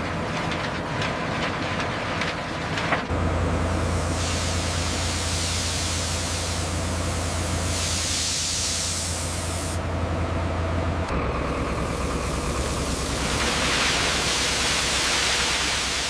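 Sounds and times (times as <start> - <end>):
low engine hum: 2.9 - 16.0
loud even hiss: 3.7 - 9.8, 11.5 - 16.0.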